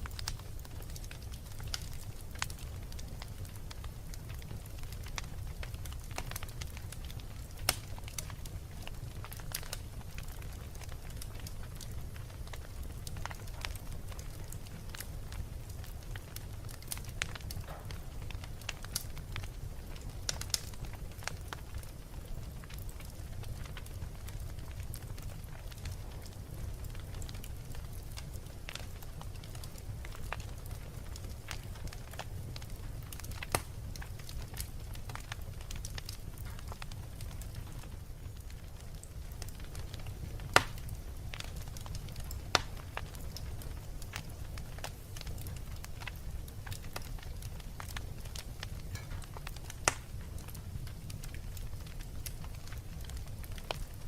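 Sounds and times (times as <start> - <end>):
low rumble of flames: 0.0 - 54.0
wood fire crackling and popping: 0.0 - 54.0.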